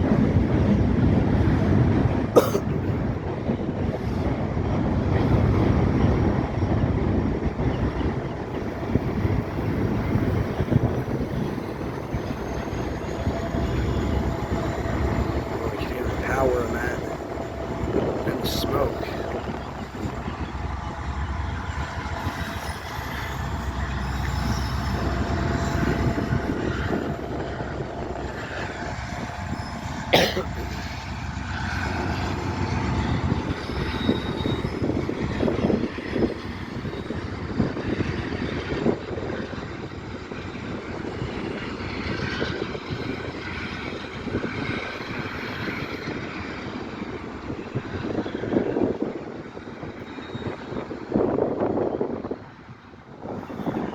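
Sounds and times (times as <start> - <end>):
freight train wheels rumbling: 0.0 - 53.9
train clanks: 0.0 - 53.9
faint wheel squeals: 33.5 - 37.2.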